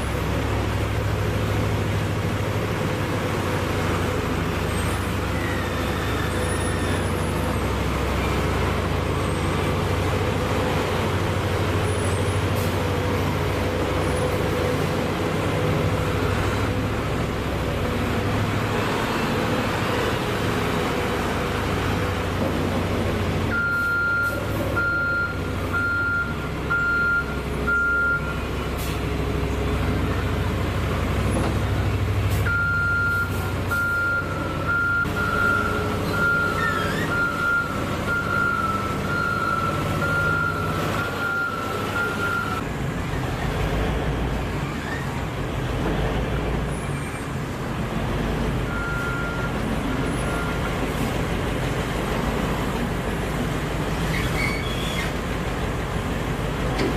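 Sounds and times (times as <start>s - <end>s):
diesel engine running: 0.0s - 56.9s
back-up alarm beeping: 32.5s - 42.6s.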